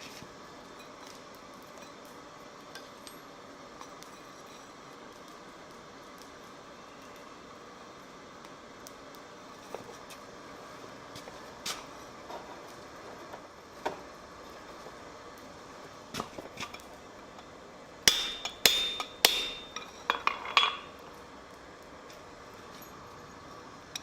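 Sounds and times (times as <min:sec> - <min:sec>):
hammer striking metal on anvil: 0:18.1 - 0:20.9.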